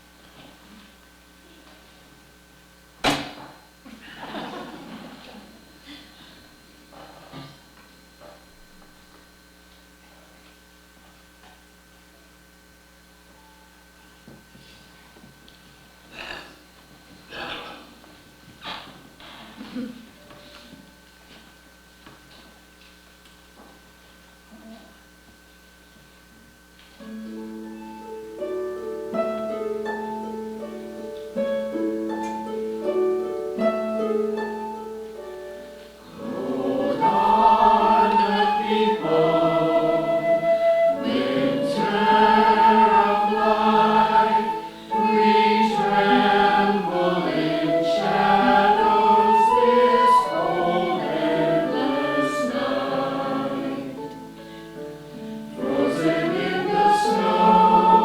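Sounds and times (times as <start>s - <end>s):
plucked instrumental notes: 27.3s - 52.6s
choir singing: 36.0s - 54.4s, 55.6s - 58.0s.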